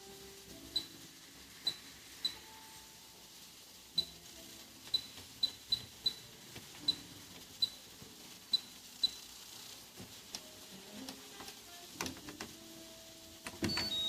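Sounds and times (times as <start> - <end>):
washing machine beeps: 0.6 - 1.0, 1.6 - 2.8, 4.0 - 4.2, 4.8 - 7.9, 8.5 - 9.3, 13.4 - 14.0.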